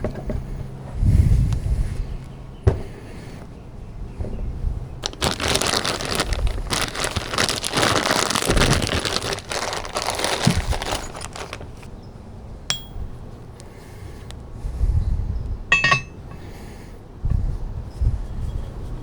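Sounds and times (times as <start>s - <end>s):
dense crinkling crackling: 5.0s - 11.9s
light metallic clink: 12.7s - 13.2s, 15.7s - 16.4s.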